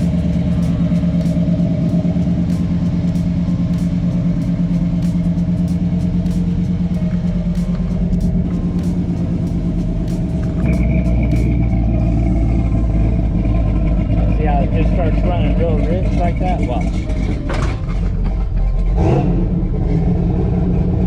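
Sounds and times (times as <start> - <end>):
pickup truck engine idling: 0.0 - 21.0.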